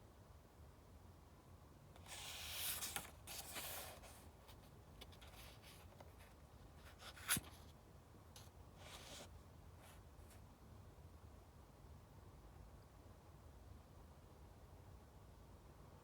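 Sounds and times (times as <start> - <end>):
book pages rustling: 2.0 - 7.7.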